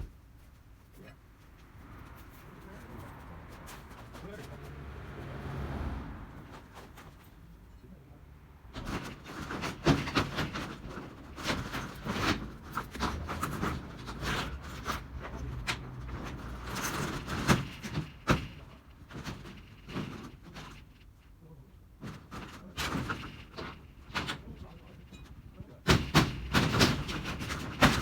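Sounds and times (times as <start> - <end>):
metal roofing scraping and rattling: 6.2 - 7.6, 8.6 - 28.0.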